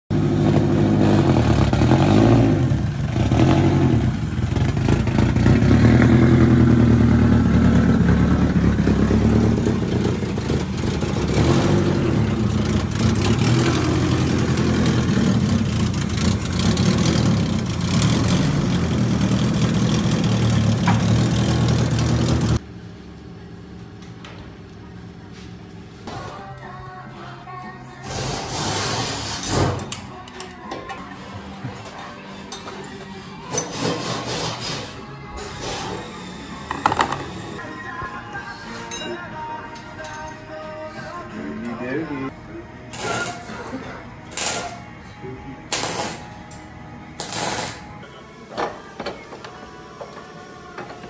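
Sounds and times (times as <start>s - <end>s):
loud car engine idling: 0.1s - 22.6s.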